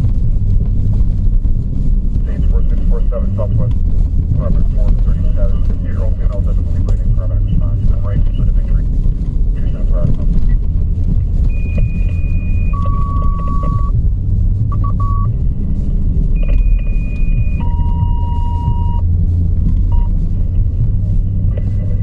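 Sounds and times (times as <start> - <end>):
vehicle engine rumble: 0.0 - 22.0
short beeps: 11.5 - 13.9, 14.7 - 15.3, 16.4 - 19.0, 19.9 - 20.2
radio two-tone electronic tones: 11.5 - 14.0, 14.7 - 15.3, 16.4 - 19.0, 19.9 - 20.2.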